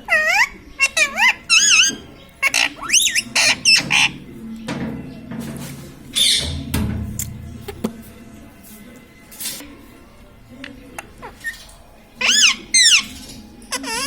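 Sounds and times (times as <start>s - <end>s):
parrot squawking and chirping: 0.0s - 4.2s, 6.2s - 6.6s, 11.2s - 14.0s.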